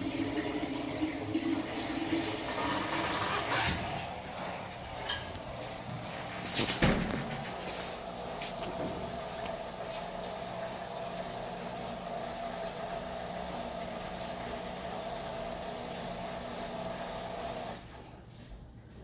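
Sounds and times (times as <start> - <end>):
washing machine motor humming: 0.0 - 18.2.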